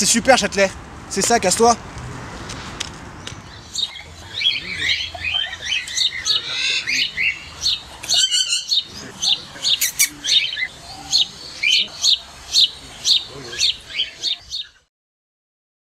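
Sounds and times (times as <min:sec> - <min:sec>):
birds chirping: 0:00.0 - 0:14.9
bird trill: 0:03.4 - 0:14.8.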